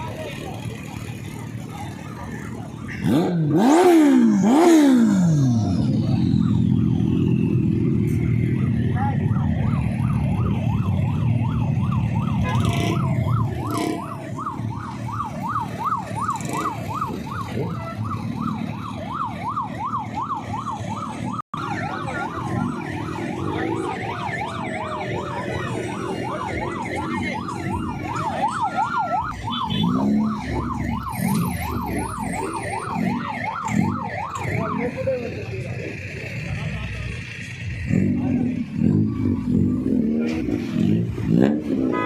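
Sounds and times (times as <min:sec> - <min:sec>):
electronic siren yelping: 0:00.0 - 0:36.2, 0:38.5 - 0:42.0.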